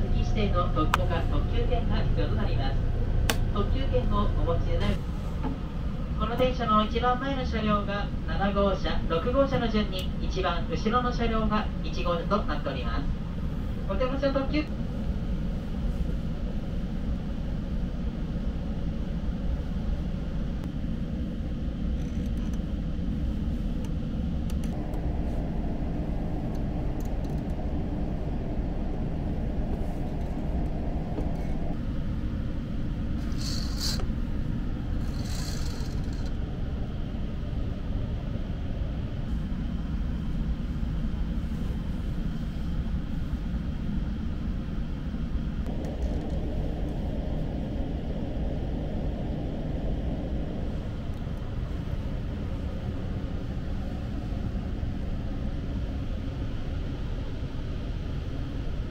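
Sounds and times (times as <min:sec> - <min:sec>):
train wheels rumbling: 0:23.0 - 0:47.8.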